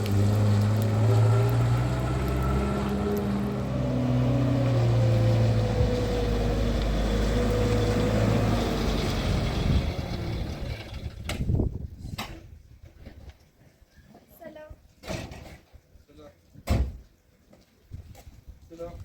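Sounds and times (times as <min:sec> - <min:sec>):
vehicle engine droning: 0:00.0 - 0:11.5.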